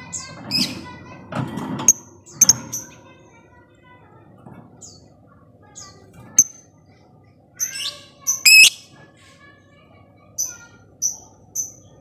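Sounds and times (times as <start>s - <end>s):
lovebirds chirping: 8.2s - 8.8s.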